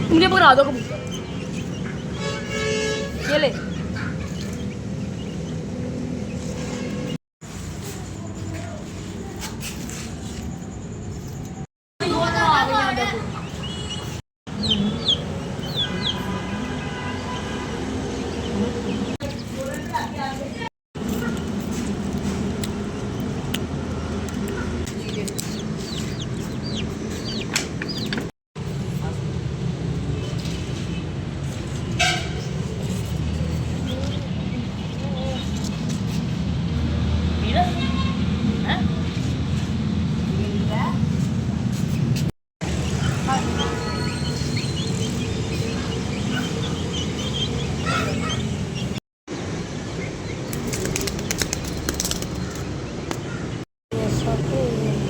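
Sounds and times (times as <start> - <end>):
birds chirping: 0.0 - 7.2, 10.2 - 28.3, 41.9 - 55.0
sharp clicks: 50.5 - 53.2.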